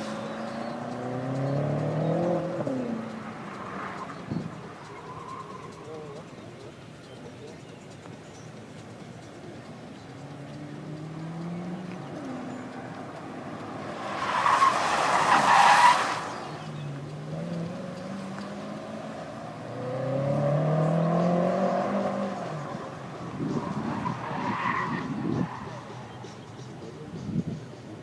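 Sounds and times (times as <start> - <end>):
tyres squealing: 0.0 - 6.4, 11.4 - 17.5, 22.2 - 26.5
car engine revving: 0.0 - 6.5, 9.4 - 26.7.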